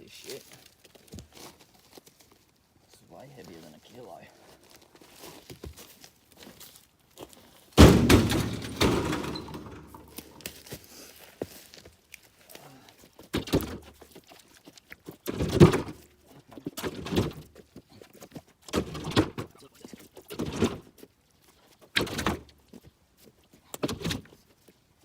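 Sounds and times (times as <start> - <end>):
wooden thuds and knocks: 7.8 - 10.4, 15.3 - 16.0
heavy log thunking down: 7.8 - 10.5.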